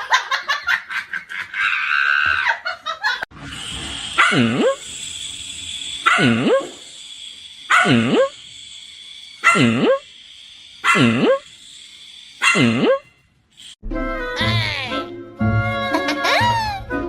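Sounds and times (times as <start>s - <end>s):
dog barking drawn-out barks: 4.2s - 4.8s, 6.0s - 6.6s, 7.7s - 8.3s, 9.4s - 9.8s, 10.8s - 11.3s, 12.4s - 13.0s.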